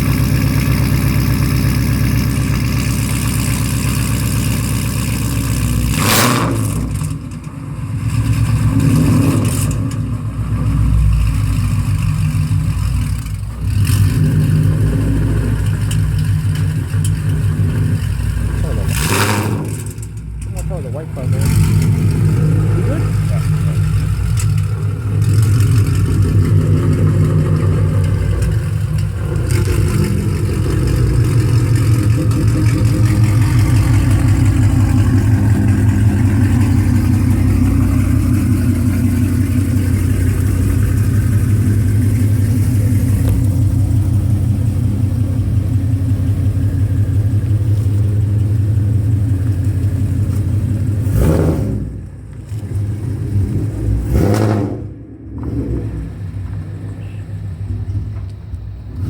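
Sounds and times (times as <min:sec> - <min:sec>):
car engine idling choppy exhaust: 0:00.0 - 0:59.0.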